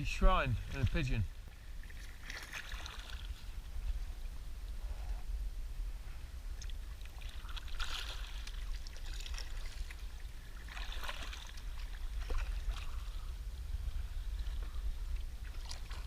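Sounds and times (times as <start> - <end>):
paddle splashing in water: 0.6 - 3.6, 6.6 - 13.3, 14.1 - 16.0.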